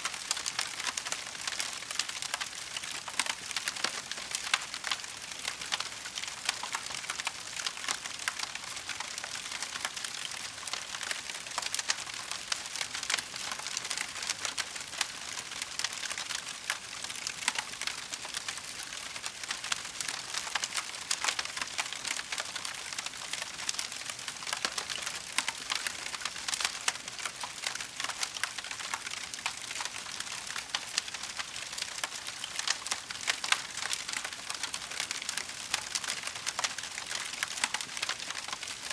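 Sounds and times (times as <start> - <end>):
wood fire crackling: 0.2 - 38.9.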